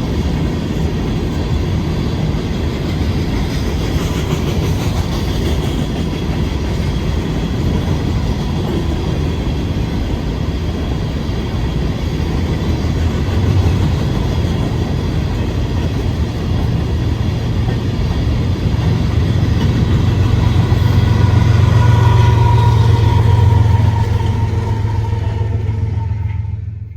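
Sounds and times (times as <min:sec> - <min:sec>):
train wheels clacking over rails: 0:00.0 - 0:26.9
locomotive diesel engine drone: 0:16.1 - 0:26.9.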